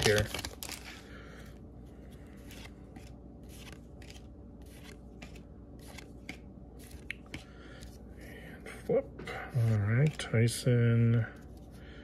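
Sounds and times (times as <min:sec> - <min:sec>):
cards swishing when flipped: 0:02.4 - 0:07.9.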